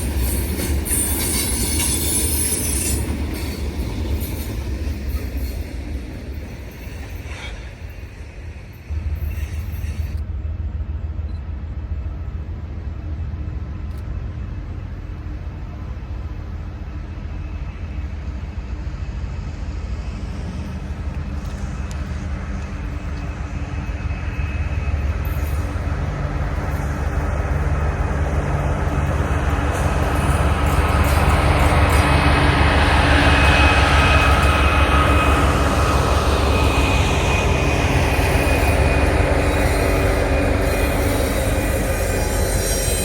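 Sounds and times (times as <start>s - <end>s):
diesel locomotive rumble: 0.0s - 43.0s.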